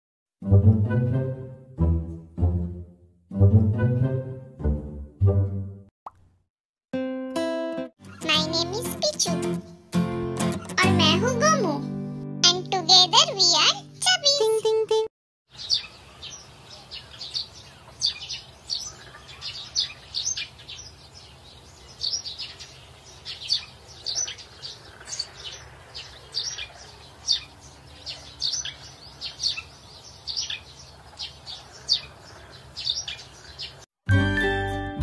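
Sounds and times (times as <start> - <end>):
plucked music: 0.4 - 5.8, 7.0 - 15.1, 34.1 - 35.0
small birds chirping: 15.5 - 33.9.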